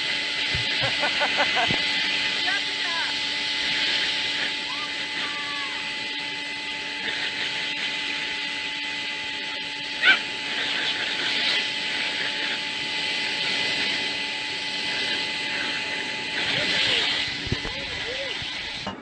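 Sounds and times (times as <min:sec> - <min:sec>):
dog whining: 0:10.0 - 0:10.3
dog yelping: 0:10.0 - 0:10.3.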